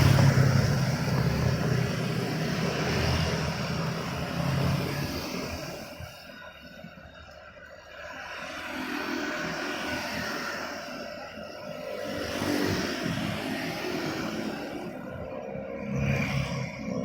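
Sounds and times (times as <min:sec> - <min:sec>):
vehicle passing: 0:00.0 - 0:05.4.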